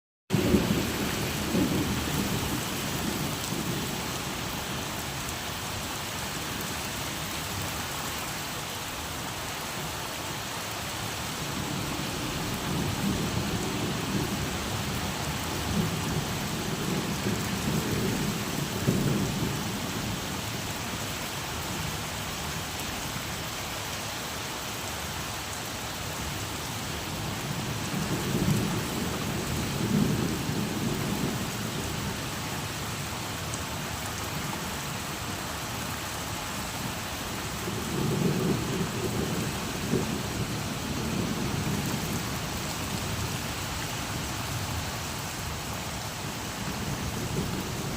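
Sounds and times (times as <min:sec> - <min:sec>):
low rolling thunder: 0:00.3 - 0:04.0, 0:11.5 - 0:20.2, 0:27.5 - 0:32.2, 0:37.6 - 0:43.3, 0:46.6 - 0:47.9
steady rain falling: 0:00.3 - 0:47.9.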